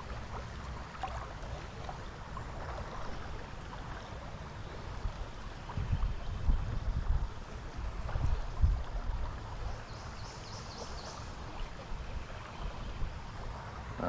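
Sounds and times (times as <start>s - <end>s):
creek water flowing: 0.0s - 14.0s
water trickles and splashes: 0.0s - 14.0s.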